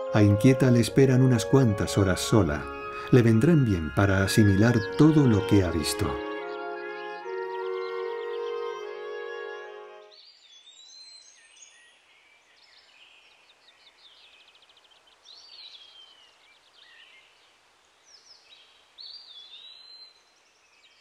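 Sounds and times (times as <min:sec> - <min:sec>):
songbirds calling and singing: 0:00.0 - 0:21.0
light countryside hiss: 0:10.2 - 0:21.0.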